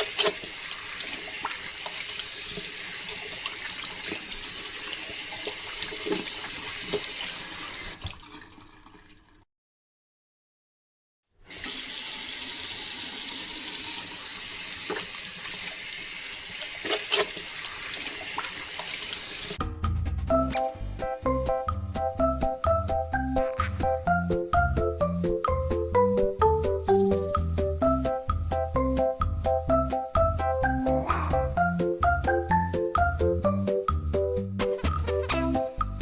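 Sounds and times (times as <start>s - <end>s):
water pouring and splashing: 0.0s - 9.4s, 11.5s - 19.6s.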